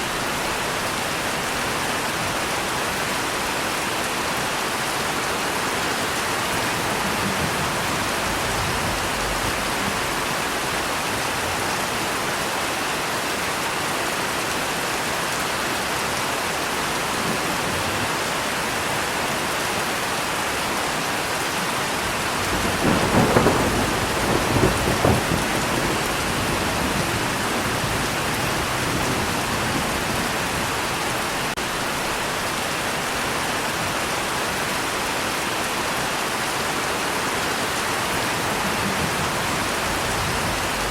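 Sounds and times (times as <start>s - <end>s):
heavy rain falling: 0.0s - 40.9s
thunder rumbling: 6.2s - 11.8s, 21.9s - 32.3s, 38.0s - 40.9s.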